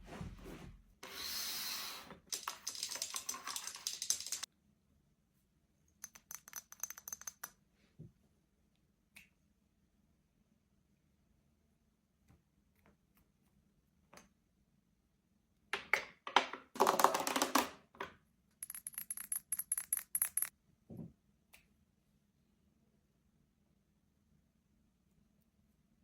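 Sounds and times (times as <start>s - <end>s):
rattle of small ticks: 6.0s - 7.6s.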